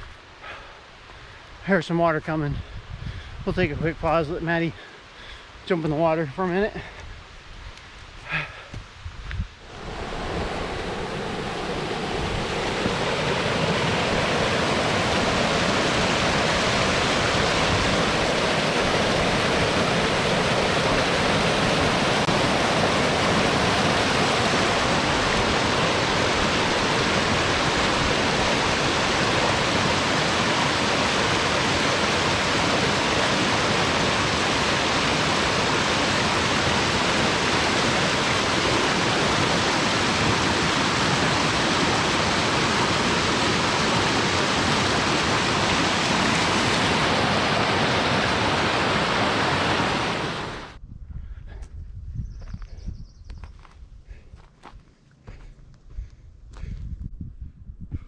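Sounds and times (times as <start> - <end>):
stream rushing over rocks: 9.6 - 50.8.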